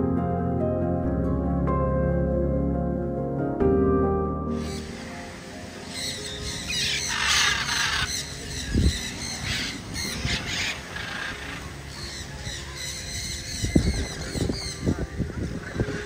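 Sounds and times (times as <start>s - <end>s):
birds squawking harshly: 4.6s - 5.2s, 5.8s - 16.0s.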